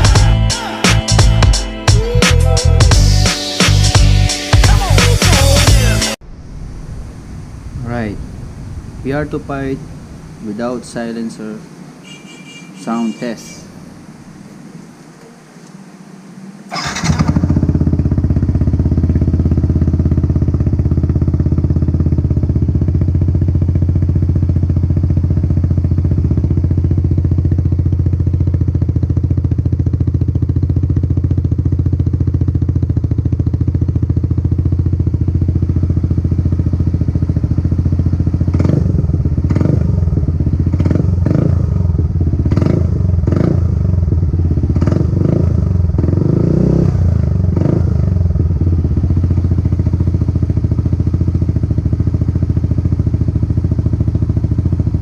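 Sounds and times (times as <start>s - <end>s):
scooter throttle blips: 14.4s - 20.8s
scooter engine idling: 16.4s - 55.0s.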